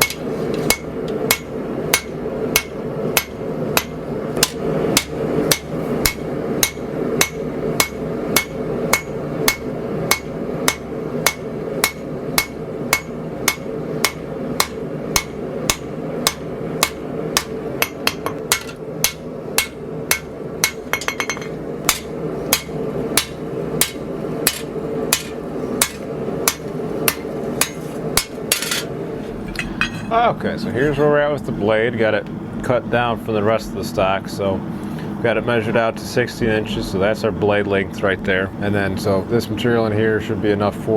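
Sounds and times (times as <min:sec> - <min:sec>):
hammer striking blade on anvil: 0:00.0 - 0:28.9
steady hum: 0:00.0 - 0:40.9.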